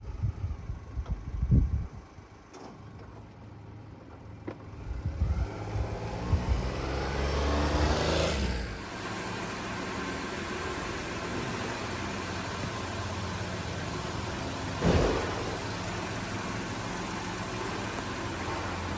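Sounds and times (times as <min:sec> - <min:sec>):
vehicle engine and road noise: 0:00.0 - 0:18.9.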